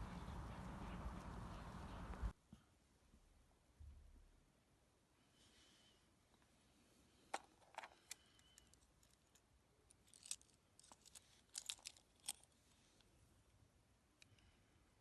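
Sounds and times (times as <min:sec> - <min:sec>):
small plastic parts clicking: 0:07.3 - 0:12.6.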